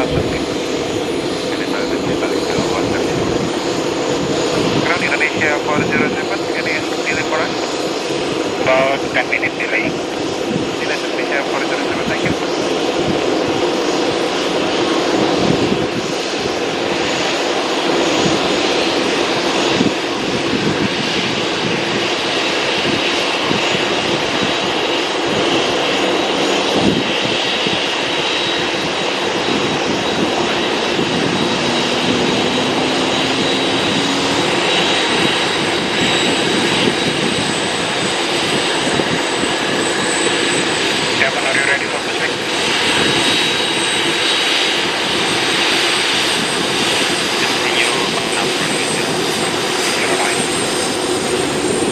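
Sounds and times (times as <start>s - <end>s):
jet engines running: 0.0s - 51.9s
high whine: 29.2s - 45.8s.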